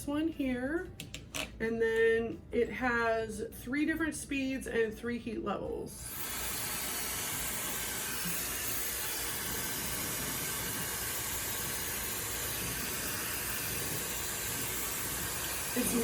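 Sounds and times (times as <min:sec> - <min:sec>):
hair dryer blowing: 0:06.0 - 0:16.0.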